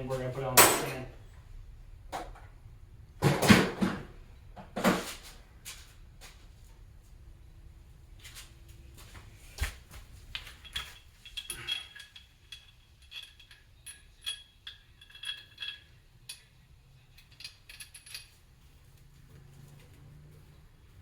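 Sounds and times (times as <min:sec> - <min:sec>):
metal tools clinking: 0:00.5 - 0:01.1, 0:10.4 - 0:18.5.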